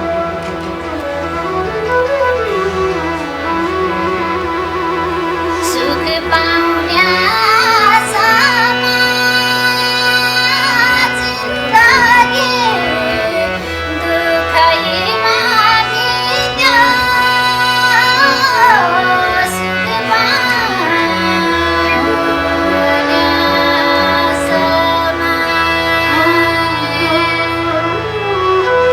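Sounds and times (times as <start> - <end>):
band accompaniment: 0.0 - 5.6
vibrato instrumental line: 0.0 - 27.6
woman singing: 5.1 - 28.9.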